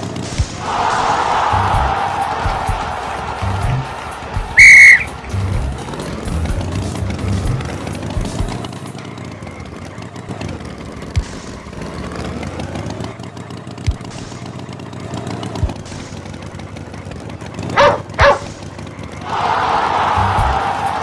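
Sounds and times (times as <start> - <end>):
dog barking: 17.7 - 18.6.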